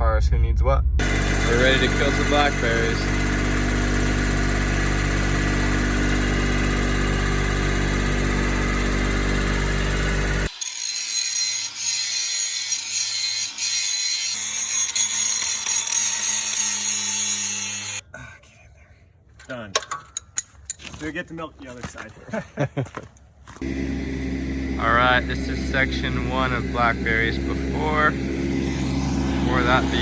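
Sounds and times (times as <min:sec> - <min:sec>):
low hum: 0:00.0 - 0:10.5, 0:23.6 - 0:30.0
high-pitched mechanical whine: 0:00.0 - 0:18.0, 0:23.6 - 0:30.0
engine running steadily: 0:01.0 - 0:10.5, 0:23.6 - 0:30.0.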